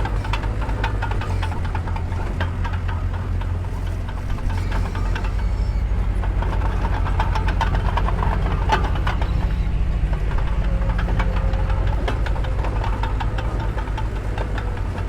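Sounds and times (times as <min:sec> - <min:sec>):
diesel engine throbbing: 0:00.0 - 0:15.0
metal clanks and rattles: 0:00.0 - 0:15.0.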